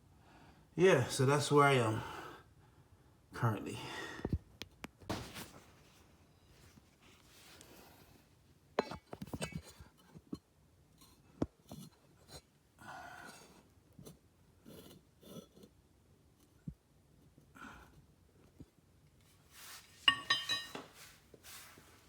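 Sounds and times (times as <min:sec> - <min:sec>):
metal tools clinking: 0:20.0 - 0:21.0.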